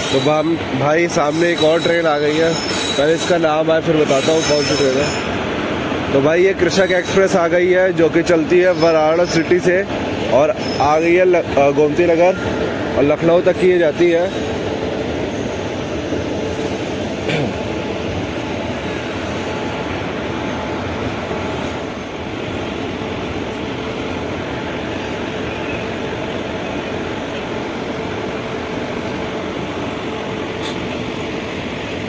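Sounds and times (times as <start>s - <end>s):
train coaches rumbling: 0.0s - 32.0s.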